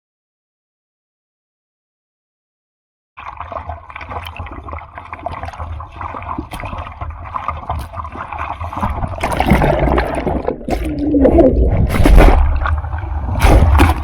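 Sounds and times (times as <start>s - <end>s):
sea water sloshing and splashing: 3.2s - 14.0s
low rumble: 9.6s - 14.0s.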